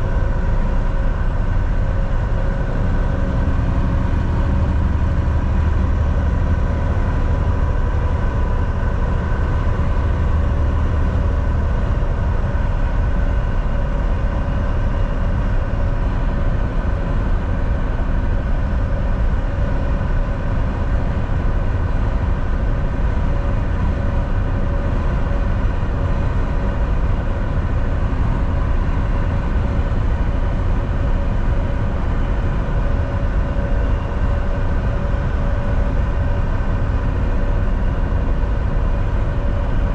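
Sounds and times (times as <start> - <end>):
road rumble: 0.0 - 13.9
constant hum: 0.0 - 39.9
truck engine drone: 0.0 - 39.9.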